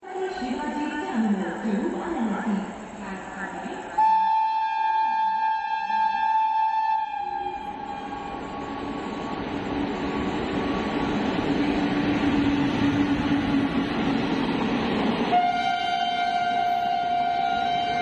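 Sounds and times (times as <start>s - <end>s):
train horn: 4.0s - 8.8s, 15.3s - 18.0s
train running noise: 7.1s - 18.0s.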